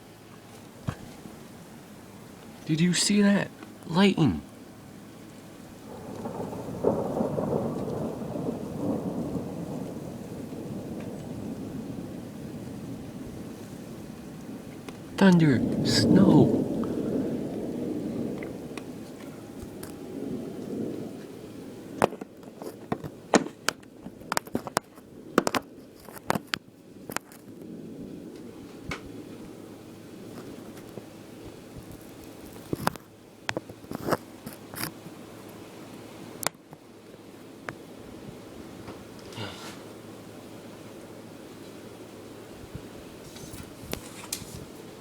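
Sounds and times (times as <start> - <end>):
rolling thunder: 5.5 - 24.4.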